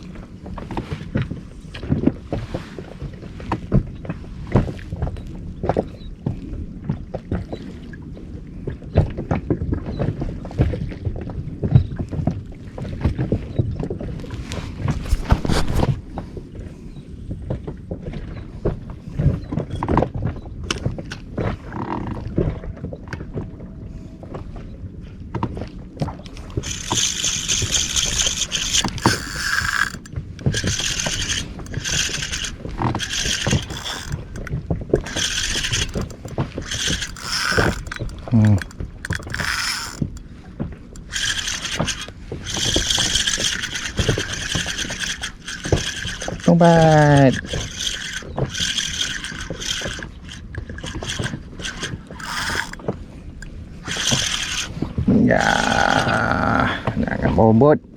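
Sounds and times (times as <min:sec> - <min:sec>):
fishing reel whirring: 0:26.2 - 0:56.3.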